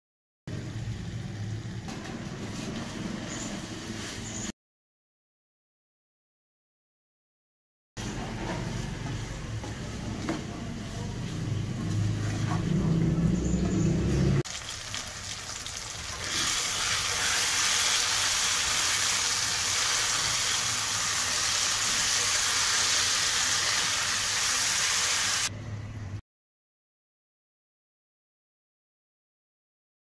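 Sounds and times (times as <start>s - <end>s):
food sizzling in hot oil: 14.4s - 25.5s.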